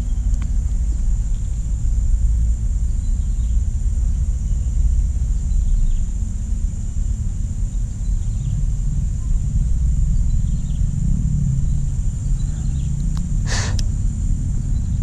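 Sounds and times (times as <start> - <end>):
low outdoor rumble: 0.0 - 15.0
brief hiss: 13.5 - 13.8.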